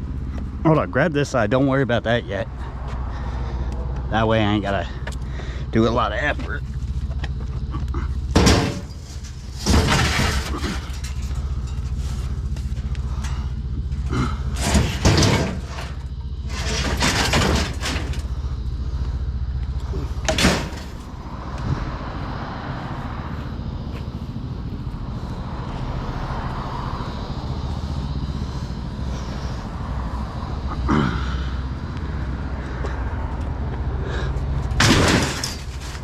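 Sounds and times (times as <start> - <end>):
truck engine rumble: 0.0 - 36.0
scrap metal bangs and clatters: 8.3 - 18.4, 20.2 - 21.2, 34.7 - 36.0.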